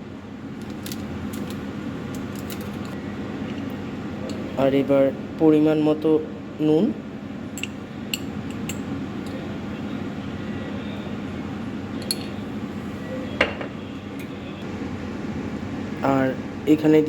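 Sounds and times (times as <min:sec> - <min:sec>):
steady background hum: 0:00.0 - 0:17.0
utensils and dishes clinking: 0:12.0 - 0:12.4.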